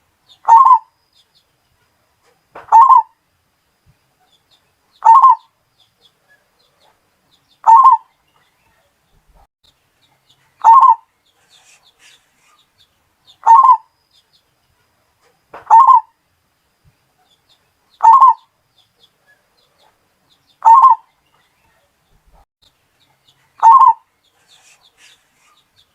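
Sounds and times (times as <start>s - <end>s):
dove cooing: 0.4s - 0.9s, 2.7s - 3.1s, 5.0s - 5.4s, 7.6s - 8.1s, 10.6s - 11.1s, 13.4s - 13.9s, 15.7s - 16.1s, 18.0s - 18.5s, 20.6s - 21.0s, 23.6s - 24.0s.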